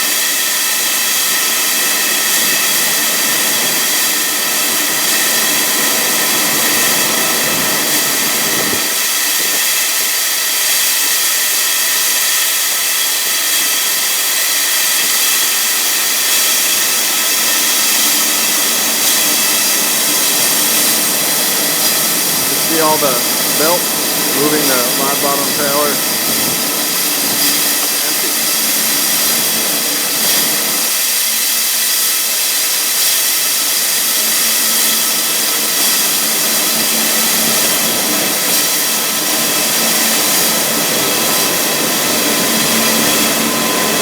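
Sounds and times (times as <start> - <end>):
grain rushing hiss: 14.4 - 44.0.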